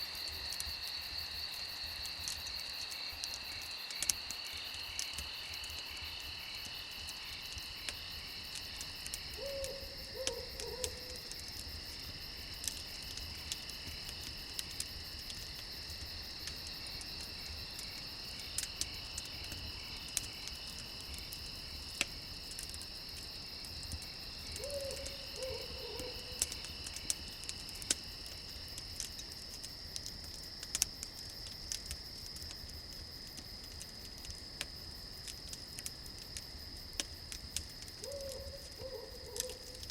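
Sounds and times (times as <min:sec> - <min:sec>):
campfire crackling: 0:00.0 - 0:39.9
crickets chirping: 0:00.0 - 0:39.9
owl hooting: 0:09.4 - 0:11.1, 0:24.6 - 0:26.3, 0:38.0 - 0:39.6.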